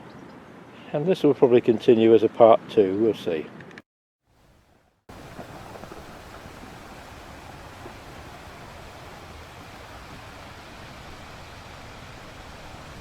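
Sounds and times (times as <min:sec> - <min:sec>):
sea waves washing onto beach: 0:05.1 - 0:13.0
wind on microphone: 0:05.1 - 0:13.0.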